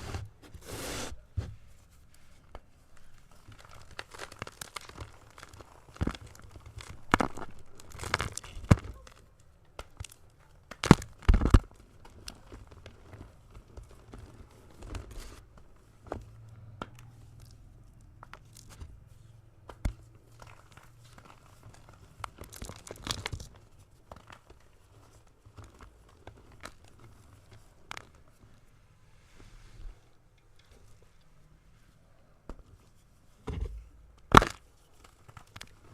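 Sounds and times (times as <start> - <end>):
chalk crunching: 0.0 - 1.2.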